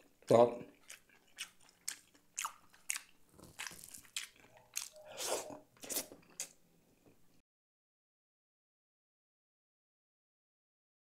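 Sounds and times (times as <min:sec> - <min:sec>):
man chewing food: 0:00.0 - 0:07.2.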